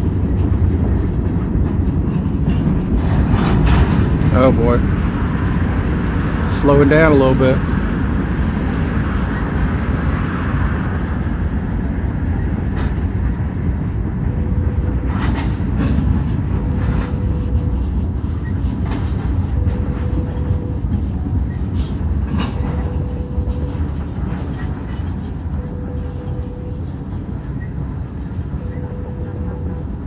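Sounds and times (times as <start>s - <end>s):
wheels clacking over rail joints: 0.0s - 6.6s, 7.2s - 30.0s
train rumbling: 0.0s - 30.0s
faint high tone: 25.5s - 27.7s.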